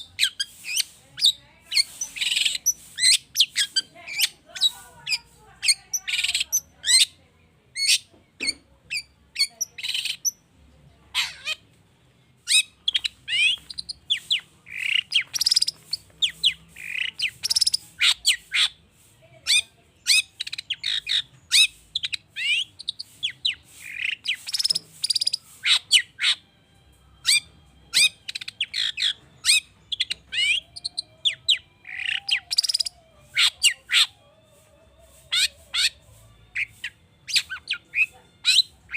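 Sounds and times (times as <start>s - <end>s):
shrike singing: 0.0s - 7.2s, 12.5s - 18.7s, 27.2s - 34.2s.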